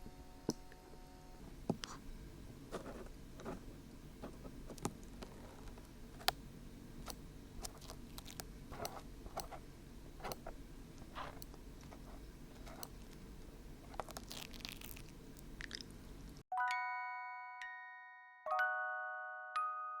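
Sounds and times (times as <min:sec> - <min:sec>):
glue peeling crackles and clicks: 0:07.0 - 0:09.5, 0:13.9 - 0:15.9.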